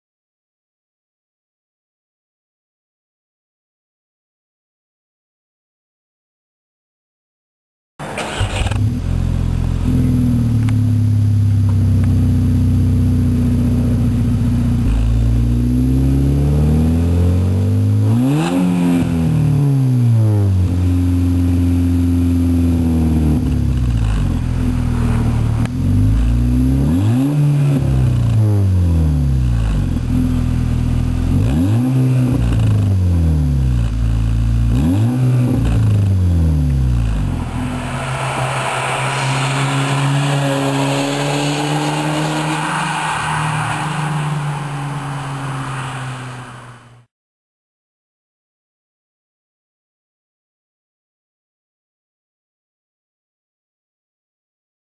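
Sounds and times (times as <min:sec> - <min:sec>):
car engine idling and revving: 0:08.0 - 0:47.1.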